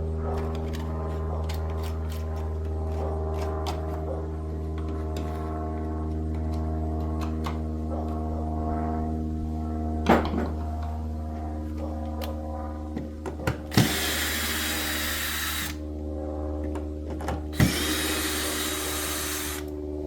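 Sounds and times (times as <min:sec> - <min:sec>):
steady hum: 0:10.7 - 0:20.0
power tool whirring: 0:13.7 - 0:15.8, 0:17.5 - 0:19.8.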